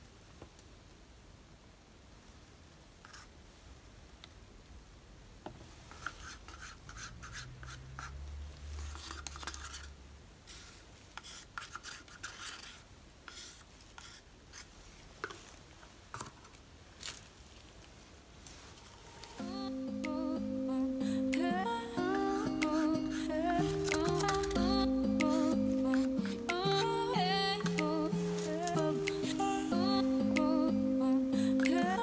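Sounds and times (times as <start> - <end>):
scraping and rubbing: 5.9 - 9.9.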